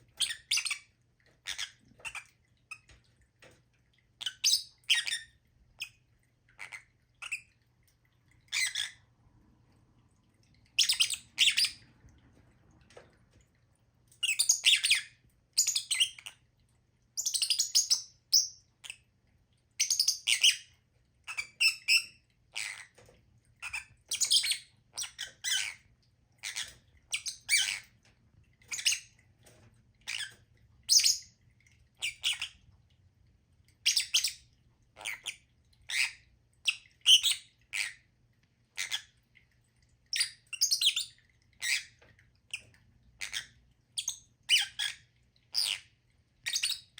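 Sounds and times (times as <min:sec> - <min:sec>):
birds chirping and squawking: 0:10.8 - 0:11.9, 0:21.3 - 0:25.8, 0:26.4 - 0:28.0.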